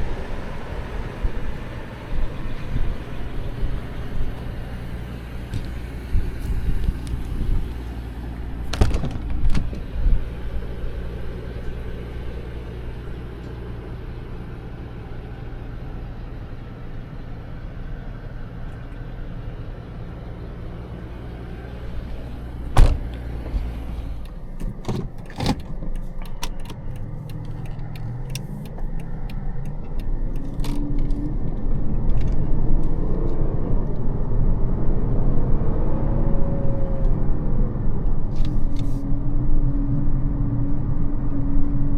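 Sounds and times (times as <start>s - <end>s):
car engine idling: 0.0s - 33.0s
sharp clicks and knocks: 8.7s - 9.8s, 22.8s - 34.0s.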